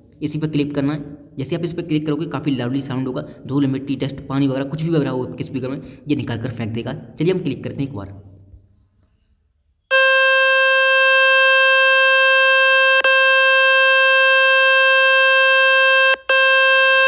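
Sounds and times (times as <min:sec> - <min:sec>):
loud buzzing tone: 0:09.9 - 0:17.0.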